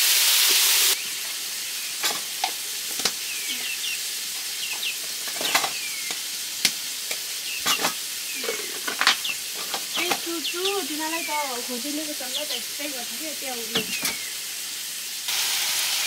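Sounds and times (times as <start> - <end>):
curry sizzling in a wok: 0.0 - 16.0.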